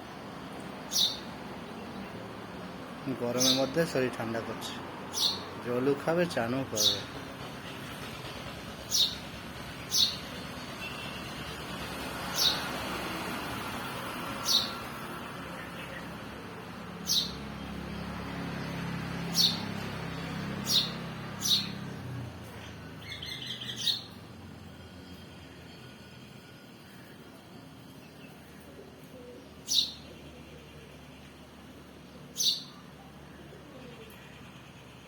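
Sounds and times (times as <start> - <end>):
bird chirping: 0.8 - 2.2, 3.3 - 3.8, 5.1 - 5.6, 8.8 - 11.3, 14.4 - 14.9, 17.0 - 24.2, 29.2 - 31.4, 32.3 - 32.9
bird twittering: 0.9 - 1.3, 5.1 - 5.5, 9.9 - 10.3, 17.0 - 17.4, 19.4 - 19.7, 20.6 - 21.8, 23.0 - 24.2, 29.6 - 30.2, 32.3 - 32.8.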